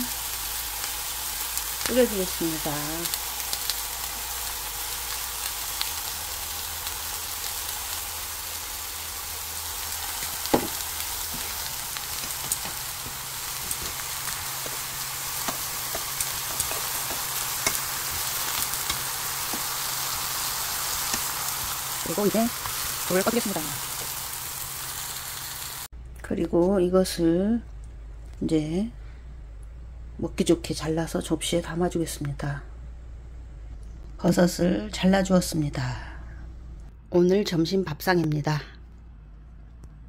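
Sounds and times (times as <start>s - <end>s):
mushrooms sizzling in oil: 0.0s - 25.9s.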